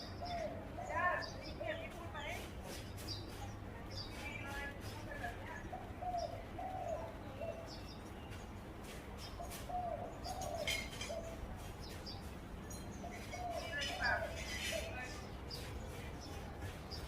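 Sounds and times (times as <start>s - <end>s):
dove cooing: 0.0s - 1.2s, 5.6s - 7.9s, 9.4s - 11.5s, 13.0s - 15.0s
small birds chirping: 0.0s - 17.0s.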